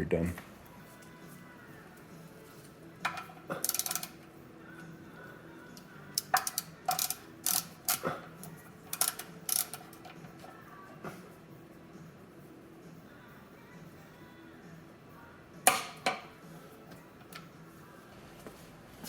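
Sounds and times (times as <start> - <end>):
torque wrench ratchet clicking: 3.6 - 4.1, 6.2 - 8.0, 8.9 - 9.9.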